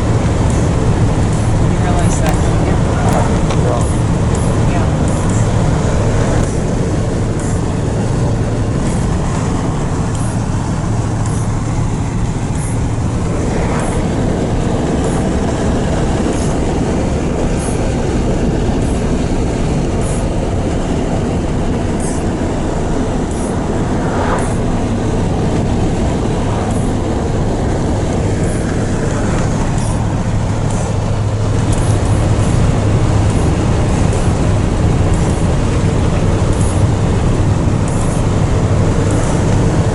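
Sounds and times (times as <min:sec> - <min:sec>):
low hum: 0:00.0 - 0:39.9
truck engine and road noise: 0:00.0 - 0:39.9.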